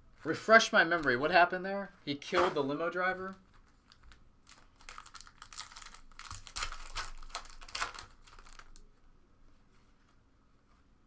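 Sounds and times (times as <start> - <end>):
foil wrapper tearing and crinkling: 3.6 - 8.8.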